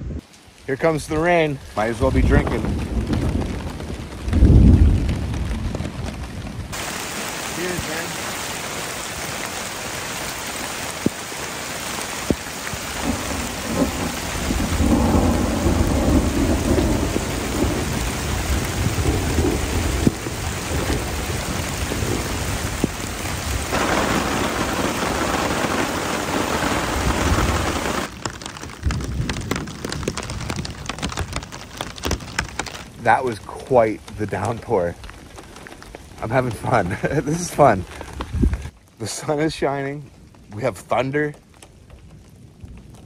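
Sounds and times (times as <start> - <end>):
heavy rain on a tarp: 0.0 - 43.0
raindrops ticking on a tarp: 0.2 - 43.0
thunder rumbling: 1.1 - 34.2.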